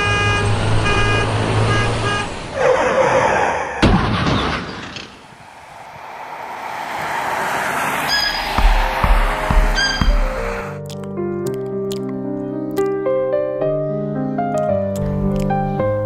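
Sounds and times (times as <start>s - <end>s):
vehicle horn blasts: 0.0s - 2.4s
rushing noise: 5.2s - 10.8s.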